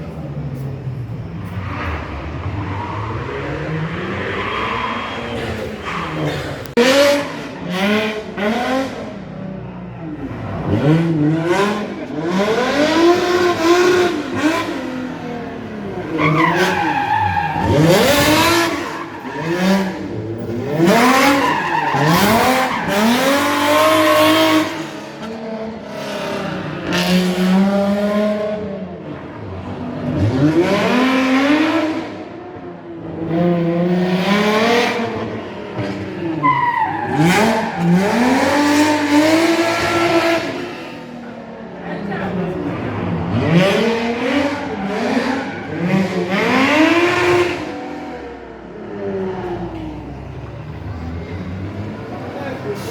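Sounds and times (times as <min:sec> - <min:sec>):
car engine revving hard: 0:01.6 - 0:09.2, 0:10.2 - 0:48.4
tyres squealing: 0:16.0 - 0:23.4.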